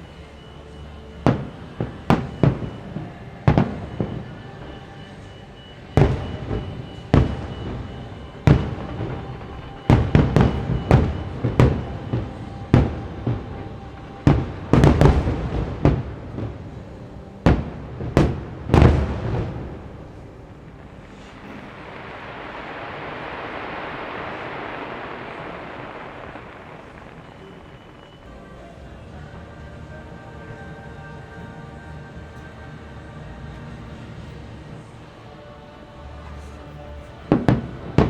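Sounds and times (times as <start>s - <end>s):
fireworks bursting with booms: 1.2s - 29.2s, 37.2s - 38.0s.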